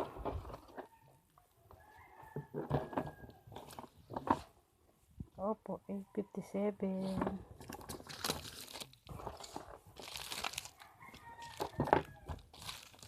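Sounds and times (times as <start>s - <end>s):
rooster crowing: 1.0s - 3.5s, 10.7s - 12.4s
packaging rustling and crinkling: 7.0s - 13.0s.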